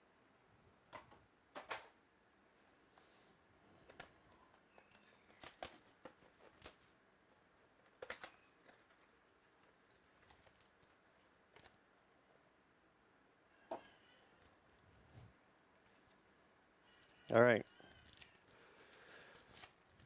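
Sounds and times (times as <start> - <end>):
trading cards clicking and rustling: 3.8 - 7.0, 7.8 - 11.8, 13.8 - 14.8, 15.8 - 20.0.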